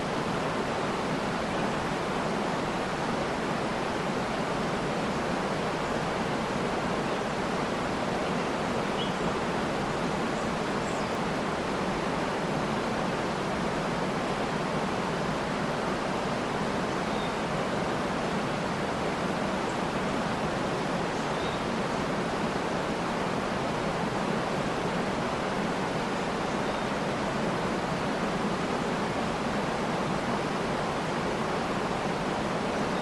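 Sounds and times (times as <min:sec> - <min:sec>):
waterfall rushing: 0:00.0 - 0:33.0
faint bird chirps: 0:08.9 - 0:09.3, 0:16.9 - 0:17.4, 0:21.1 - 0:21.7.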